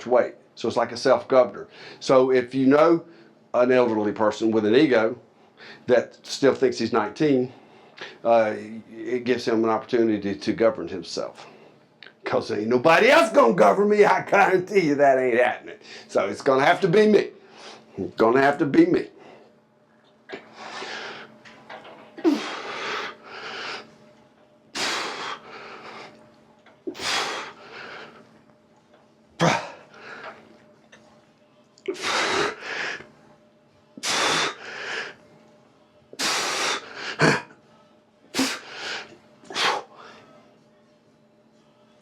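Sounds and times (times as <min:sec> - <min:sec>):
man breathing hard: 0:20.4 - 0:21.4, 0:22.2 - 0:23.9, 0:24.8 - 0:26.2, 0:26.9 - 0:28.3, 0:34.0 - 0:35.2.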